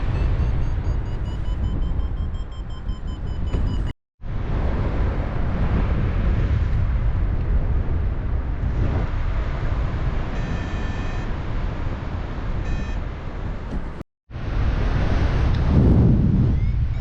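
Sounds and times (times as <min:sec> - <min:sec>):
electronic beeps: 0:00.0 - 0:03.9, 0:12.6 - 0:13.0
wind rushing over microphone: 0:00.0 - 0:17.0.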